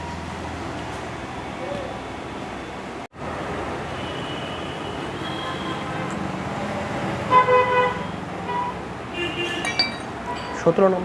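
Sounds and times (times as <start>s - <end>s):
traffic noise: 0.0s - 11.0s
vehicle horn honking: 7.3s - 10.5s.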